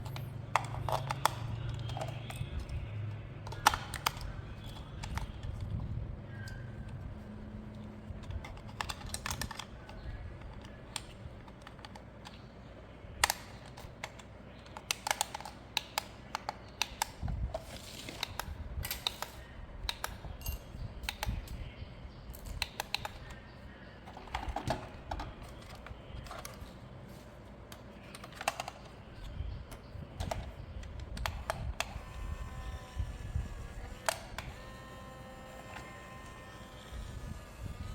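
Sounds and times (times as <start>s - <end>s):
hard plastic clicking and tapping: 0.0s - 2.9s, 3.5s - 7.0s, 24.0s - 26.8s, 27.7s - 31.9s.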